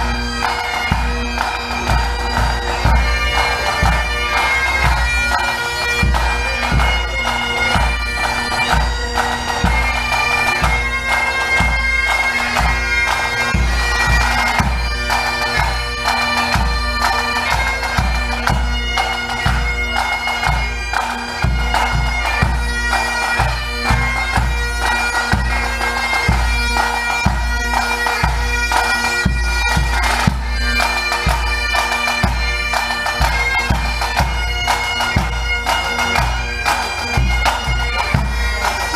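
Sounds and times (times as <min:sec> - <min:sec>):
drum beats: 0:00.0 - 0:14.8, 0:33.2 - 0:38.9
bagpipes playing melody: 0:00.0 - 0:38.9.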